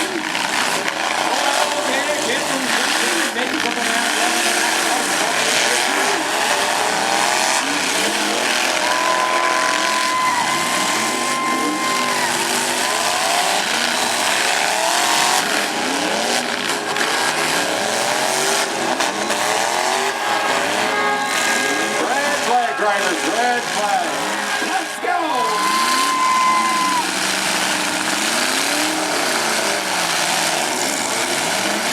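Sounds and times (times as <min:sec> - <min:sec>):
truck engines revving: 0:00.0 - 0:31.9.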